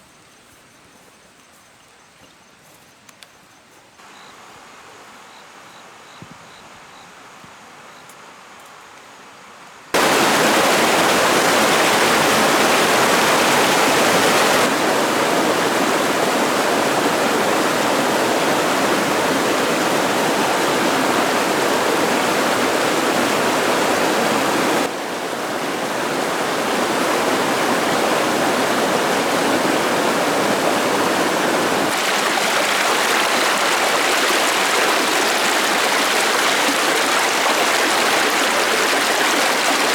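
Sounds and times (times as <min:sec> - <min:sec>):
faint outdoor ambience: 0:00.0 - 0:39.9
rushing water: 0:09.9 - 0:39.9.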